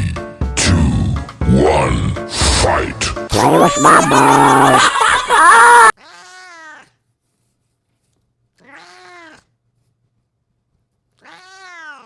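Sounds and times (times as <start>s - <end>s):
loud voice over music: 0.0s - 4.9s
cat meowing: 6.0s - 7.0s, 8.6s - 9.5s, 11.2s - 12.0s.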